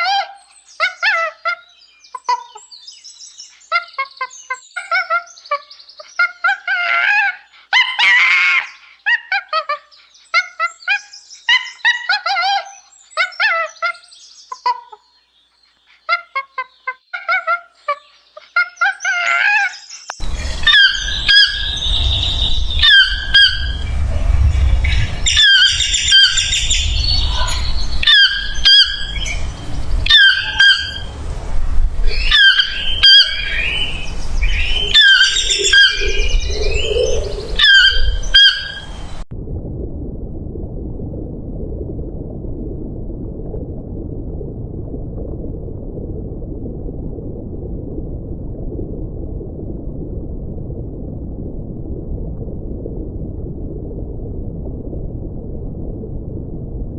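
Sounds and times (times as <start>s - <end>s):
sharp bird calls: 12.8s - 23.9s, 24.8s - 31.1s, 32.1s - 39.2s
birds chirping: 18.0s - 31.2s, 32.0s - 39.2s
steady low rumble: 20.2s - 56.9s.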